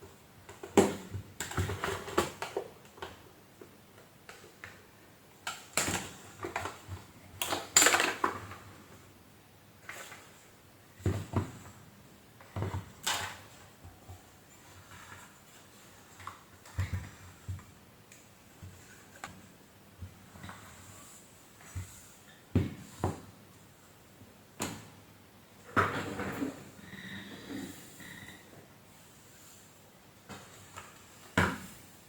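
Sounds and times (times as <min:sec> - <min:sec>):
vacuum cleaner parts rattling: 0:05.4 - 0:08.7.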